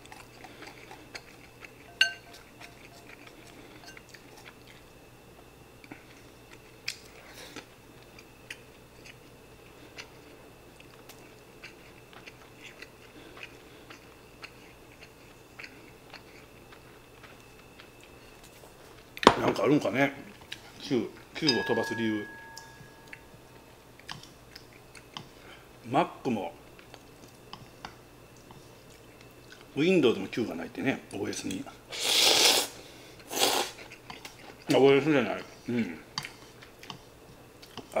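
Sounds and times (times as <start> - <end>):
person chewing: 0.0 - 4.9, 5.8 - 18.6, 32.0 - 34.7, 35.4 - 38.0
chopsticks clicking on a bowl: 21.4 - 23.2.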